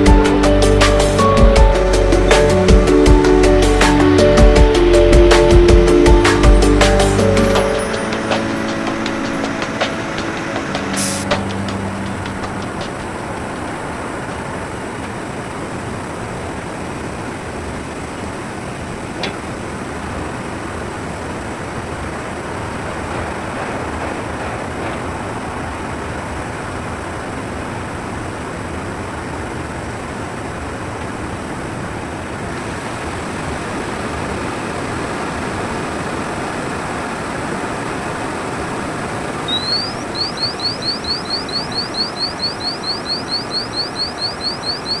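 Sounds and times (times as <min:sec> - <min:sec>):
factory machinery noise: 0:00.0 - 0:45.0
electronic warning alarm chirps: 0:39.5 - 0:45.0.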